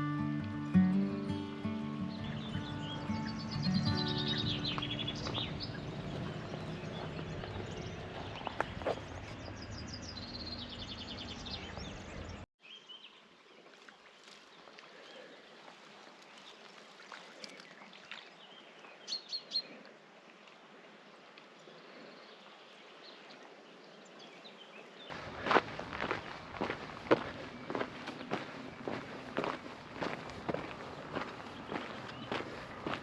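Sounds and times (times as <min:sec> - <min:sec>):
small birds chirping: 0:00.0 - 0:09.0, 0:30.7 - 0:33.0
footsteps on a trail: 0:00.9 - 0:07.8, 0:25.1 - 0:33.0.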